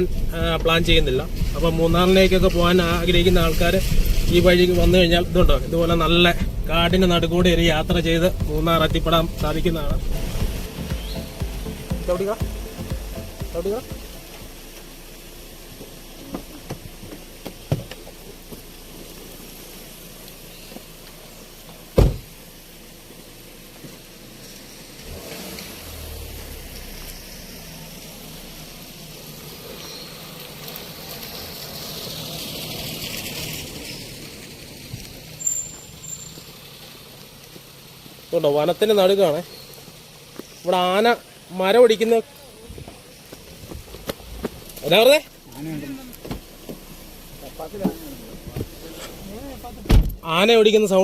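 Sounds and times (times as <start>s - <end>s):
voices: 0.0s - 14.9s, 44.7s - 51.0s
car driving on road: 0.0s - 51.0s
hiss: 14.3s - 49.8s.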